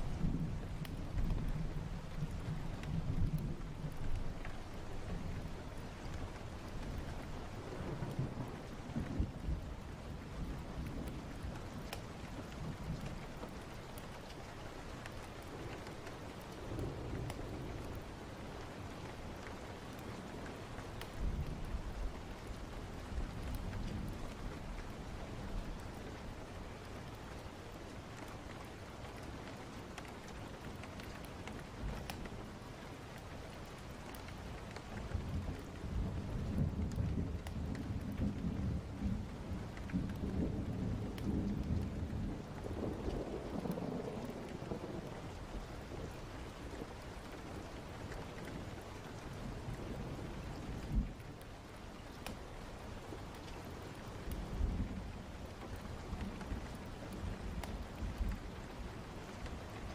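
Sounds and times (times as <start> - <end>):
low rumble of thunder: 0.0 - 59.9
sharp crackles: 0.0 - 59.9
steady rain: 0.0 - 59.9
thunder rumbling: 34.6 - 51.3.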